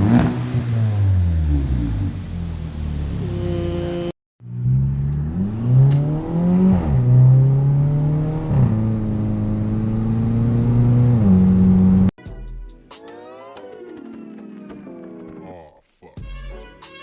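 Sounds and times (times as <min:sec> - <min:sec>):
loud car exhaust revving: 0:00.0 - 0:12.1.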